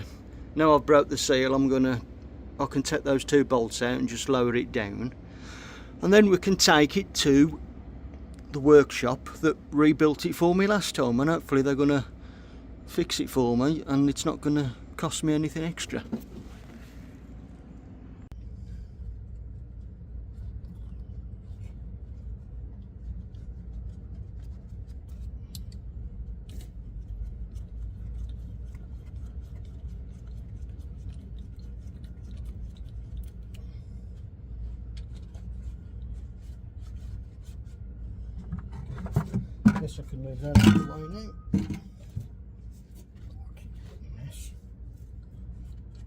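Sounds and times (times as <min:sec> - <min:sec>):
steady low rumble: 0:00.0 - 0:46.0.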